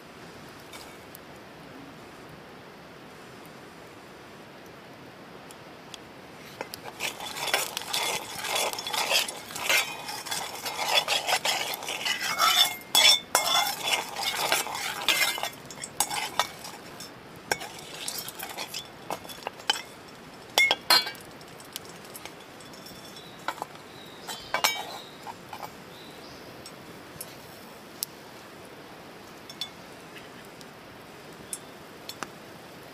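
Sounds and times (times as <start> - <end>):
utensil scraping in cooking pan: 6.4 - 25.8
utensil clinking on pan: 6.6 - 25.7.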